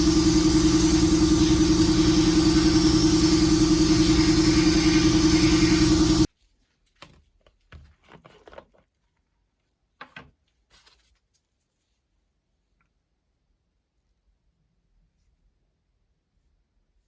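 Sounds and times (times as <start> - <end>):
power tool motor humming: 0.0 - 6.3.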